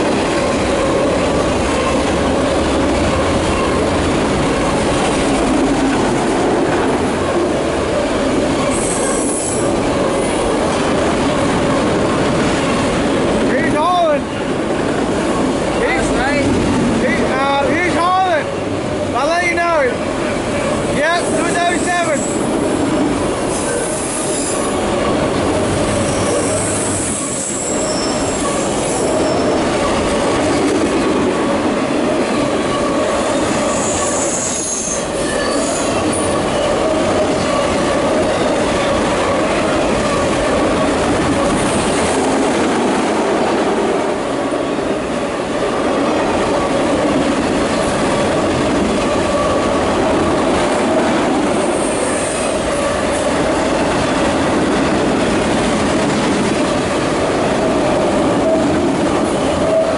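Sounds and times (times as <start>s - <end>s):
freight train rumbling past: 0.0s - 59.9s
wheel squeals: 8.6s - 10.4s, 23.5s - 30.6s, 32.4s - 39.0s.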